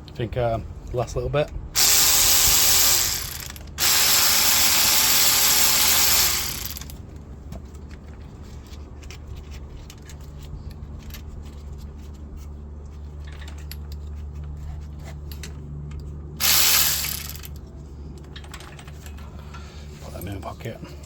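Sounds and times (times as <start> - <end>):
loud hiss: 1.8 - 6.8, 16.4 - 17.4
ratchet wrench clicking: 1.8 - 6.9, 16.4 - 17.6.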